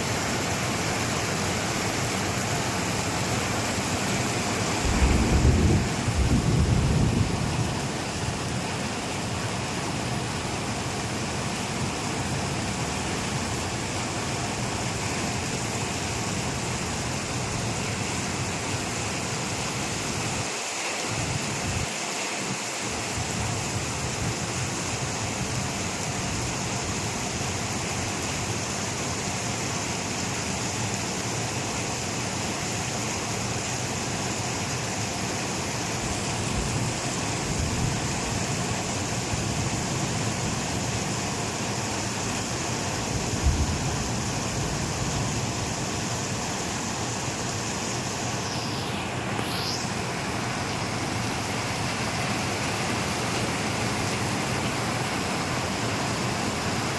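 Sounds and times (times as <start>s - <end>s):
heavy rain falling: 0.0s - 56.9s
low thud: 4.8s - 7.4s.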